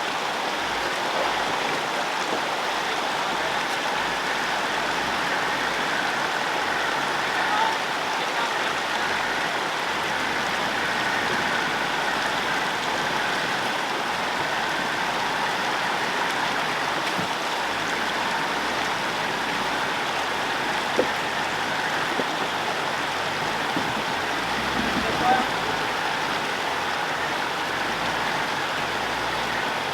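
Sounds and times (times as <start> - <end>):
river rushing over boulders: 0.0 - 29.9
faint knocks: 20.8 - 25.8.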